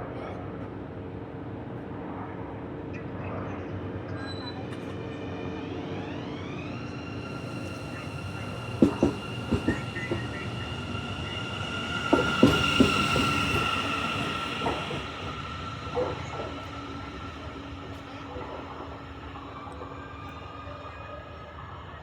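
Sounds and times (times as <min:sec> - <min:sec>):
electric train motor whine: 0:04.6 - 0:22.0
wheels clacking over rail joints: 0:08.6 - 0:19.0.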